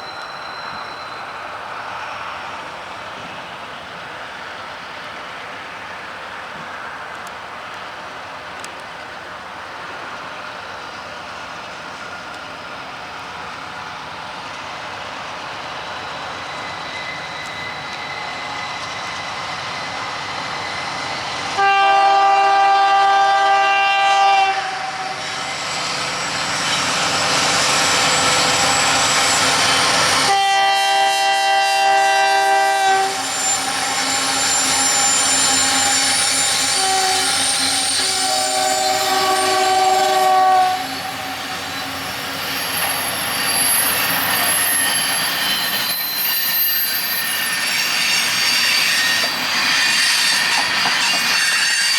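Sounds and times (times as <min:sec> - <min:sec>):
approaching train: 0:00.0 - 0:51.9
locomotive air horn blasts: 0:21.6 - 0:25.2, 0:30.2 - 0:41.4.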